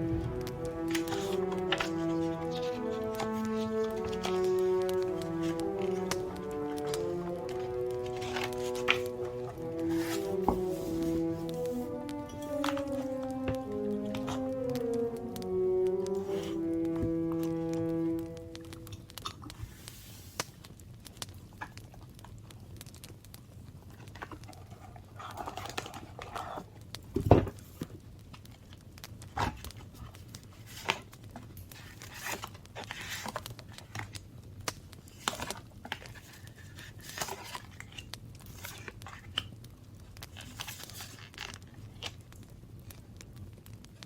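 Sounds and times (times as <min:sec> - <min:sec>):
paper rustling and crinkling: 0:00.8 - 0:14.5, 0:18.9 - 0:21.9, 0:23.8 - 0:42.3.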